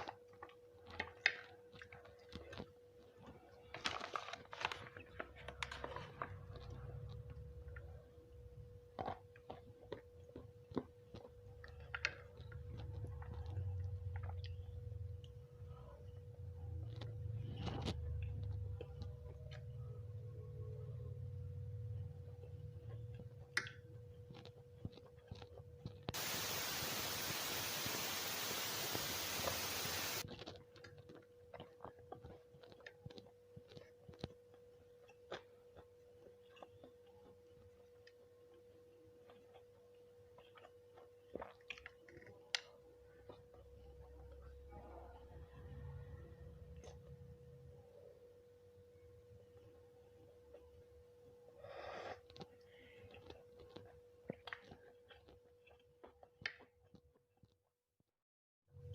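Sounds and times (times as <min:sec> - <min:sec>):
faint steady hum: 0:00.0 - 0:56.1
person chewing and crunching: 0:24.3 - 0:26.3, 0:30.3 - 0:44.3, 0:51.8 - 0:57.6
steady hiss: 0:26.2 - 0:30.2.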